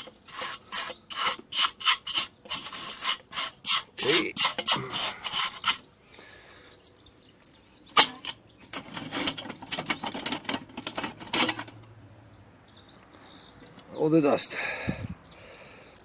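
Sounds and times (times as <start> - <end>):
hand scrubbing barbecue: 0.0 - 5.9.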